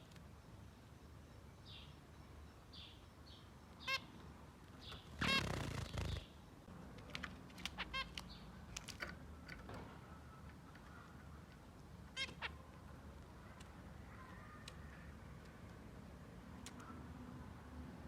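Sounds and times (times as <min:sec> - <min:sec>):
finches calling: 0:01.2 - 0:06.5.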